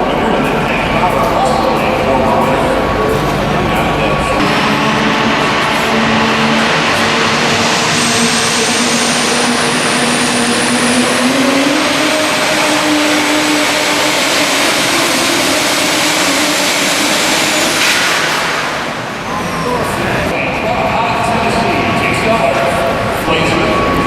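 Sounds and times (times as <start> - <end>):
pickup truck engine at full throttle: 0.0 - 19.4
loud exhaust rush: 0.0 - 24.0
turbocharger whistle: 4.3 - 20.2.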